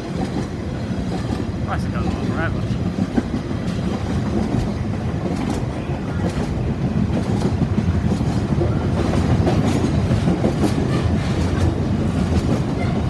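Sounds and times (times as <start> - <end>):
freight train wagons rolling past: 0.0 - 13.0
wheels clacking over rail joints: 0.0 - 13.0.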